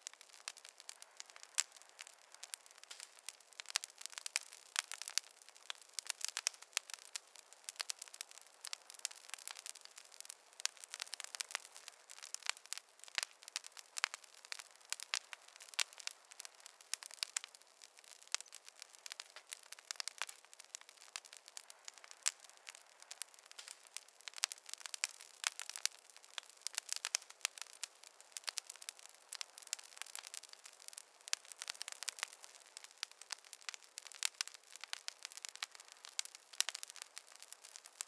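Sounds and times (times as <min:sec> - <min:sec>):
faint hiss: 0:00.0 - 0:38.0
wood fire popping and snapping: 0:00.0 - 0:38.0.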